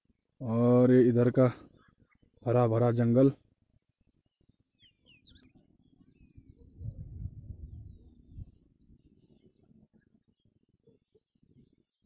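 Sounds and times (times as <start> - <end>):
small birds chirping: 0.0 - 12.0
low rumble on microphone: 6.2 - 10.0.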